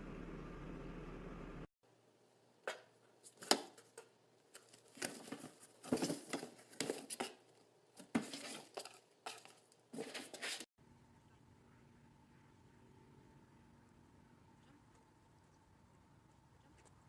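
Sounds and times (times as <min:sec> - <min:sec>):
steady hum: 0:00.0 - 0:01.7.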